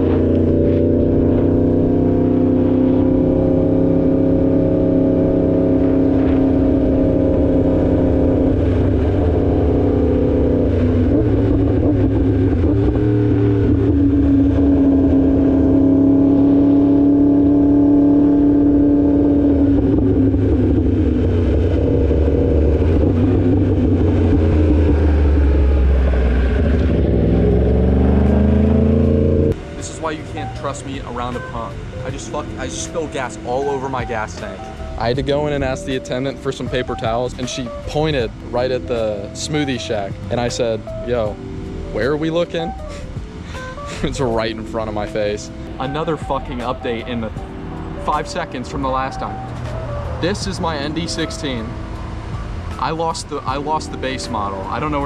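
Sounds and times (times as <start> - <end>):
motorcycle engine running: 0.0 - 40.6.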